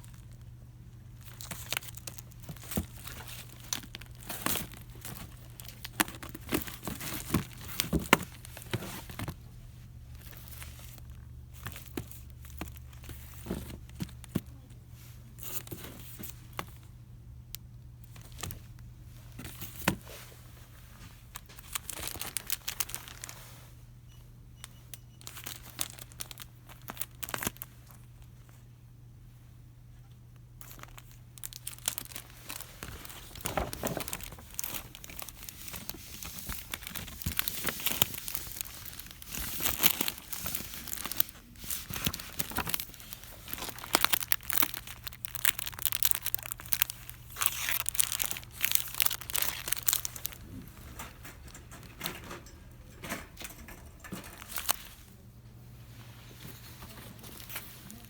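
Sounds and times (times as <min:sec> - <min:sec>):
packaging crinkling: 0:00.0 - 0:09.4, 0:10.1 - 0:14.6, 0:21.3 - 0:23.5, 0:25.2 - 0:28.3, 0:30.6 - 0:52.3, 0:53.1 - 0:55.1, 0:56.4 - 0:58.0.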